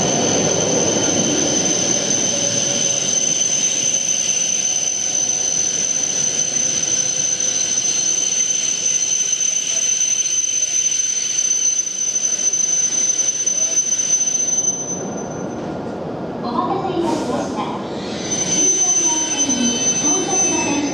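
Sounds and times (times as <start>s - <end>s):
train running rumble: 0.0s - 11.4s
high-pitched whine: 0.0s - 15.7s, 18.0s - 20.9s.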